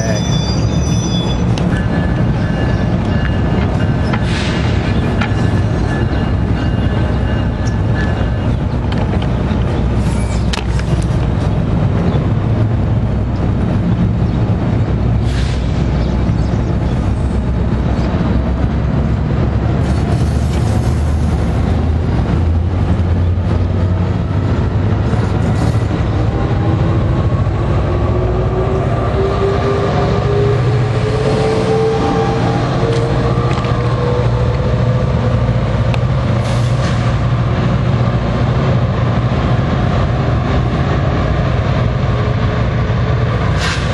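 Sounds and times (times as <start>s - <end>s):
diesel locomotive engine rumble: 0.0s - 43.9s
train clicks: 1.5s - 12.7s, 32.8s - 37.3s.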